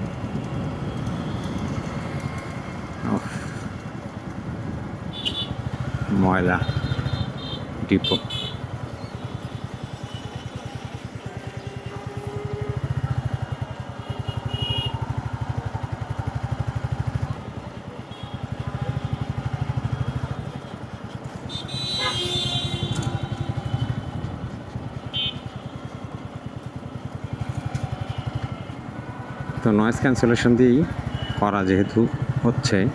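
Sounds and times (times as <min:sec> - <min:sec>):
motorcycle engine running: 0:00.0 - 0:32.9.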